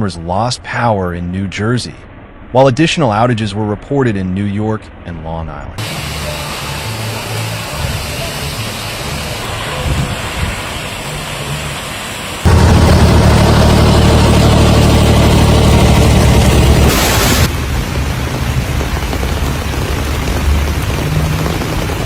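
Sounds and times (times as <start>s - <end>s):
steady rain: 5.8s - 22.0s
deep thunder rumble: 12.5s - 22.0s.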